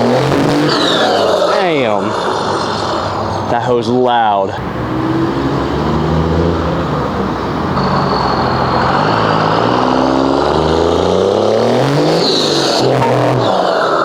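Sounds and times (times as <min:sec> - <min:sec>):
diesel engine accelerating: 0:00.0 - 0:14.0
high turbo whistle: 0:06.8 - 0:13.9.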